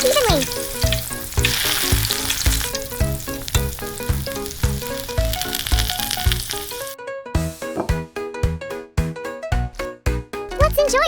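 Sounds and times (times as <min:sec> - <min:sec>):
chicken sizzling in a pan: 0:00.0 - 0:07.0
background music with a beat: 0:07.4 - 0:10.8.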